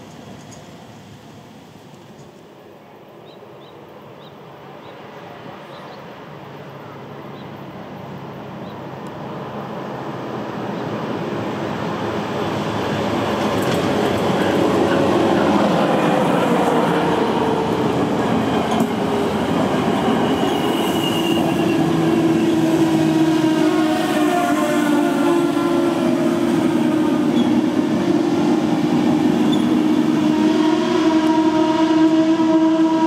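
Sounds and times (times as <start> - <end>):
train passing close by: 0.0 - 33.0
brief high squeal: 20.2 - 21.9.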